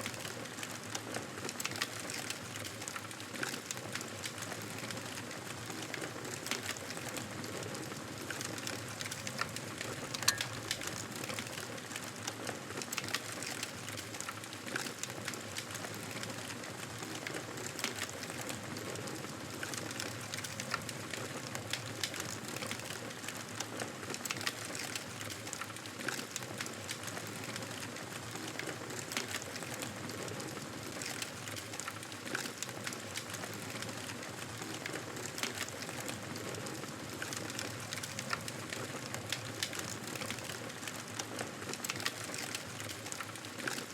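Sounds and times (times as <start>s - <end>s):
wood fire crackling: 0.1s - 43.9s.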